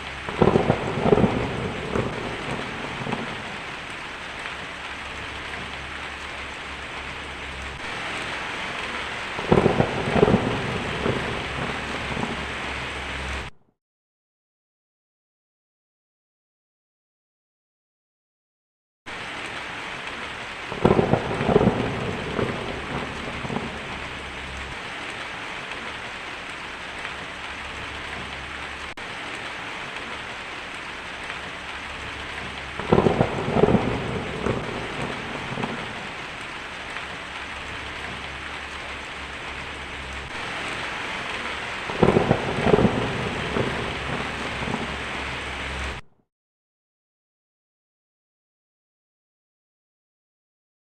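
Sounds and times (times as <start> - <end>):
thunder rumbling and crackling: 0.0 - 13.5, 19.1 - 46.0
heavy rain falling: 0.0 - 13.6, 19.1 - 46.1.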